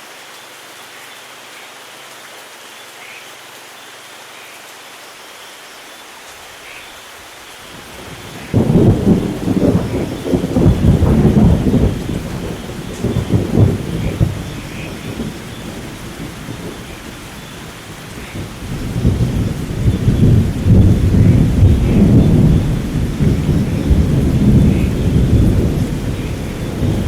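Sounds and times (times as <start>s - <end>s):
steady rain: 0.0s - 27.0s
thunder rumbling: 7.7s - 27.0s.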